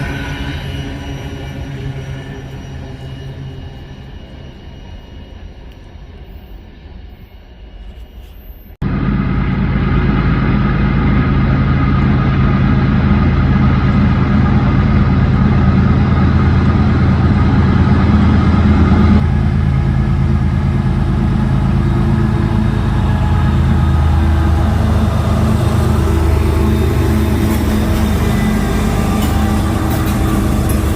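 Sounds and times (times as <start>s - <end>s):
diesel train engine drone: 0.0s - 30.9s
train wheel and rail noise: 0.0s - 30.9s
low rumble: 8.8s - 30.9s.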